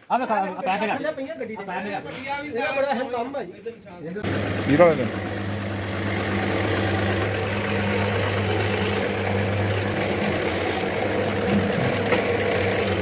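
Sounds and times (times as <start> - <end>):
machine humming: 4.2 - 13.0.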